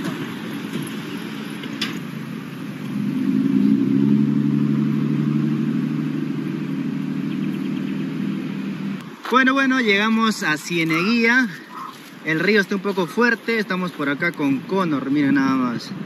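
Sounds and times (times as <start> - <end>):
car engine running: 0.0 - 9.4
road noise: 0.0 - 16.0.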